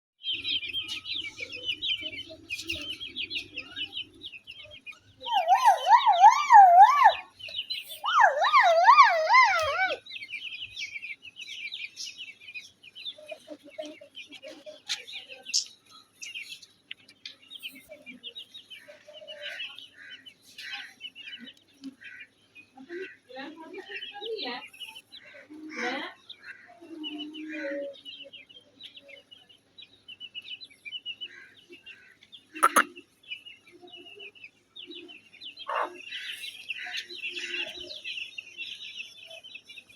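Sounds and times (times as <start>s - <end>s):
chicks peeping: 0.2s - 39.9s
loud warbling calls: 5.2s - 10.0s, 32.6s - 33.0s
hen clucking low: 32.6s - 32.9s.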